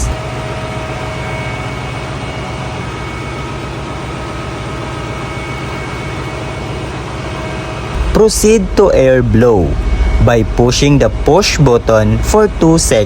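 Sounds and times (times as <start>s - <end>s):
engine room machinery drone: 0.0s - 13.0s
faint steady tones: 5.0s - 13.0s.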